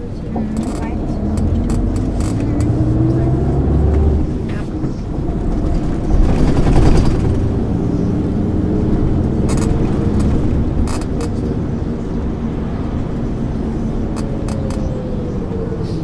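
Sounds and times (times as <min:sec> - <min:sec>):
bus body rattling: 0:00.0 - 0:16.0
bus engine running: 0:00.0 - 0:16.0.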